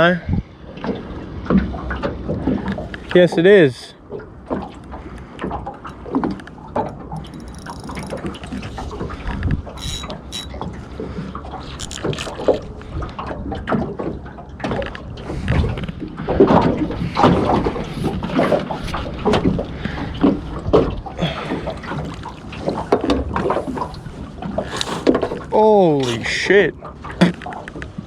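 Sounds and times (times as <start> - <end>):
wind on microphone: 0.0 - 0.6, 7.3 - 13.6, 15.1 - 21.6
knocks and clatter in boat: 0.0 - 28.0
water washing: 0.7 - 28.0.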